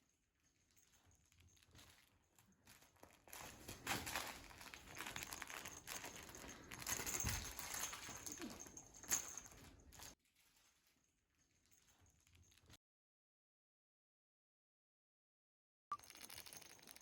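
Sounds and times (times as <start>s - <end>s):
cat rustling with toy: 0.4s - 12.8s.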